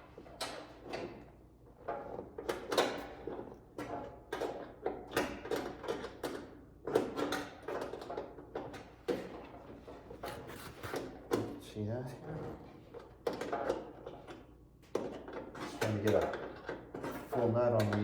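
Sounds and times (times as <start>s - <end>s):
scrapes clicks and knocks on metal: 12.8s - 18.0s.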